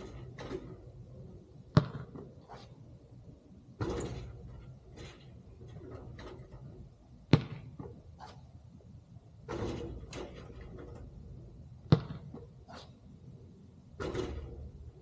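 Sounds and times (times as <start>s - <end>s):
basketball thudding on hard surface: 1.7s - 2.3s, 3.8s - 5.1s, 7.3s - 8.0s, 11.8s - 12.5s.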